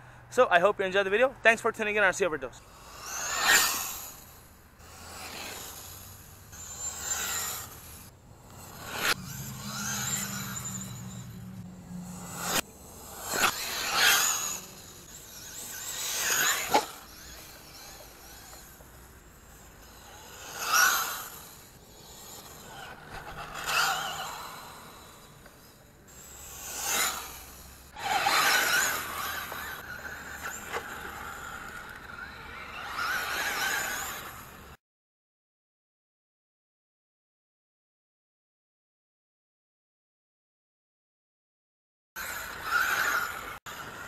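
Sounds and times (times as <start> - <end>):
rc truck motor whine: 2.5 - 34.8, 42.2 - 44.0.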